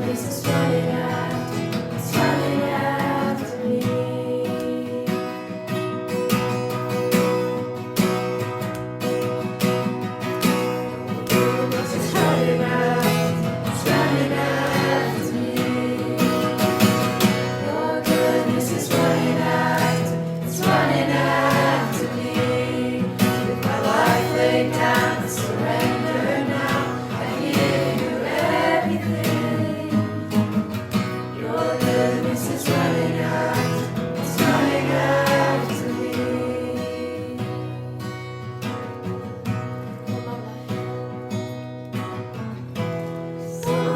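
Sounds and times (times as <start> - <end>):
group of voices singing: 0.0 - 5.8, 11.3 - 38.0, 43.4 - 43.9
strummed acoustic guitar: 0.0 - 43.9.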